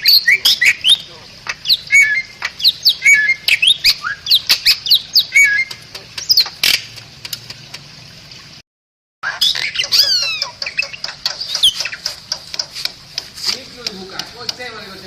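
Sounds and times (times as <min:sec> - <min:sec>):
myna chirping and whistling: 0:00.0 - 0:06.8, 0:09.2 - 0:12.2.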